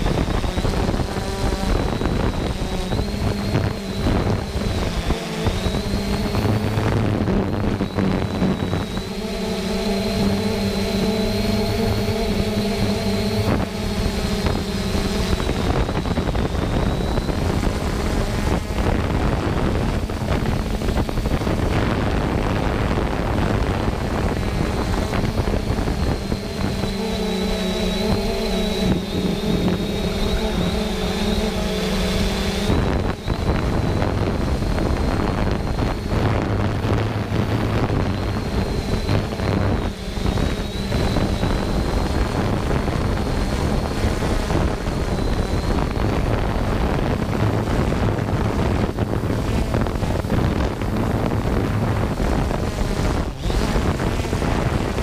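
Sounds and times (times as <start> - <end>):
drone propellers whining: 0.0 - 55.0
low droning hum: 0.0 - 55.0
wind noise on microphone: 0.0 - 55.0.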